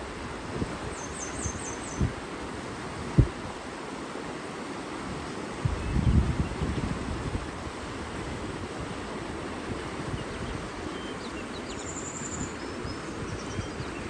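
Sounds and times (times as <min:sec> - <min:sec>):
small birds chirping: 0:00.9 - 0:02.1, 0:10.2 - 0:14.0.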